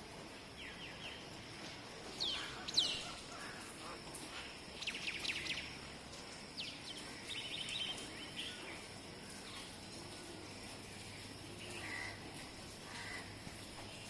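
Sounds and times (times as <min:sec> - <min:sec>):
outdoor background noise: 0:00.0 - 0:14.0
birds chirping: 0:02.1 - 0:05.8, 0:06.5 - 0:14.0.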